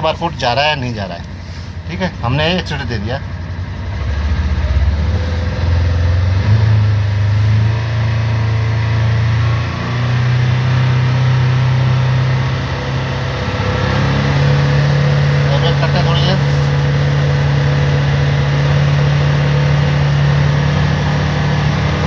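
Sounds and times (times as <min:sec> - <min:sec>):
engine at raised revs: 0:00.0 - 0:22.0.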